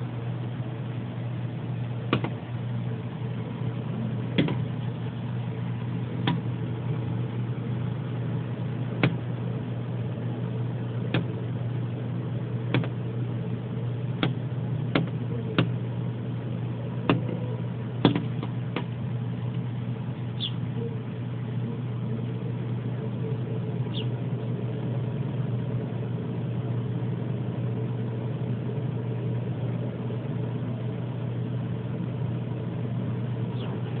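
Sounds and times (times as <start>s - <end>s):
low mechanical hum: 0.0s - 34.0s
bird chirps: 20.3s - 20.9s, 23.8s - 24.2s, 33.5s - 33.9s.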